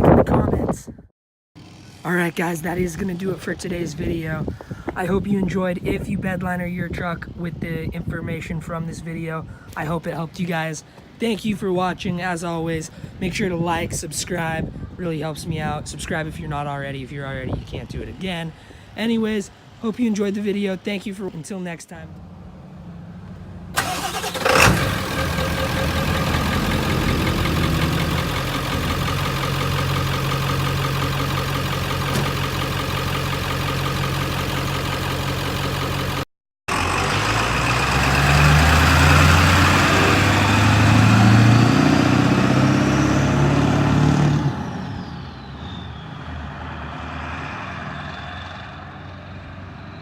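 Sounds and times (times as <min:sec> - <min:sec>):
diesel engine revving: 0:22.2 - 0:50.0.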